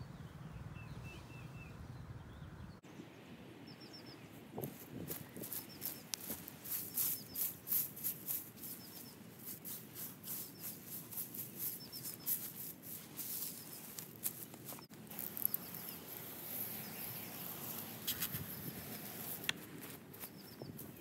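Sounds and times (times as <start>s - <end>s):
small bird chirping: 3.6s - 21.0s
dry crackling patter: 4.6s - 21.0s.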